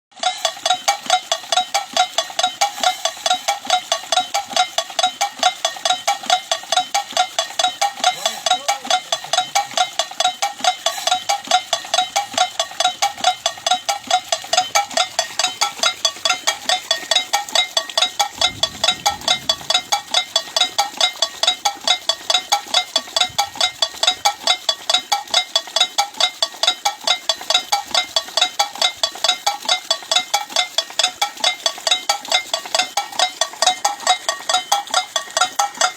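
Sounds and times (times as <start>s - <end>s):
harsh pulsing scaring tone: 18.3s - 20.5s.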